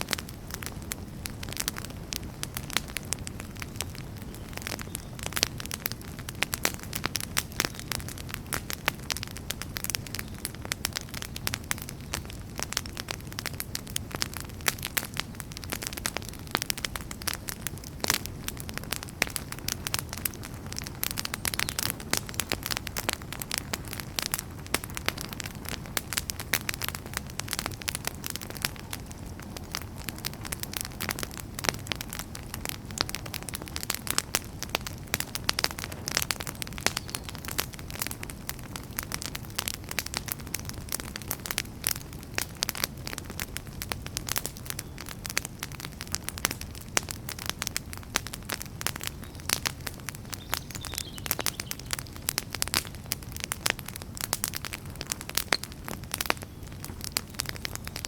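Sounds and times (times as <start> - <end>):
logs crackling and popping: 0.0 - 58.0
low rumble of flames: 0.0 - 58.0.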